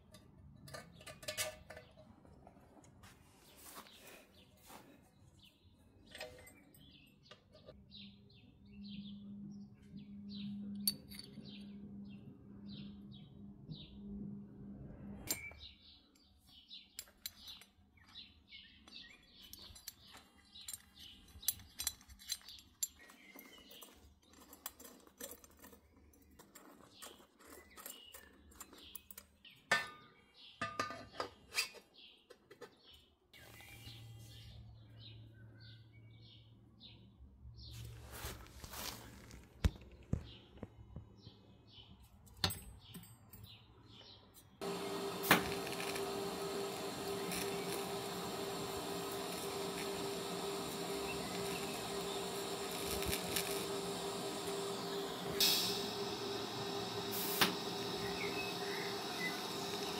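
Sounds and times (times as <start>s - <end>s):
birds chirping: 42.8s - 59.9s.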